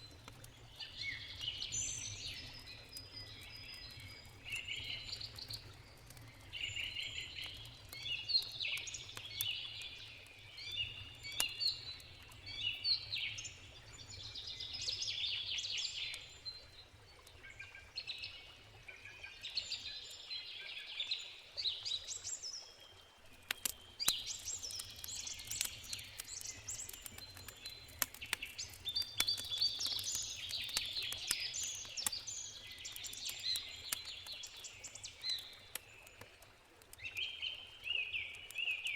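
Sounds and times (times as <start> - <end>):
campfire crackling: 0.0 - 19.4, 21.6 - 38.9
birds chirping: 23.5 - 35.8.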